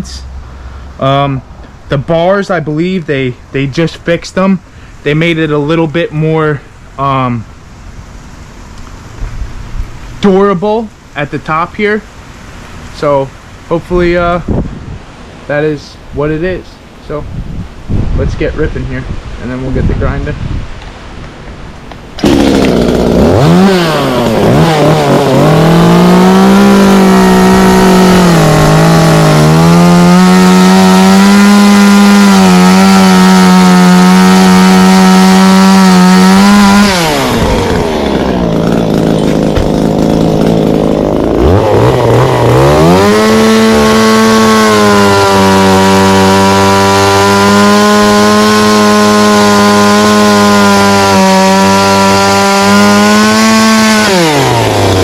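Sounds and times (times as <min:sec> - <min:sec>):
chainsaw running at high revs: 0:22.2 - 0:55.0.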